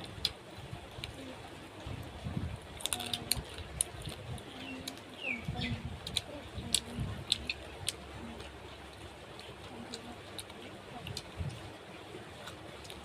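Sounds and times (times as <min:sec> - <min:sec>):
birds calling: 0:04.5 - 0:05.9.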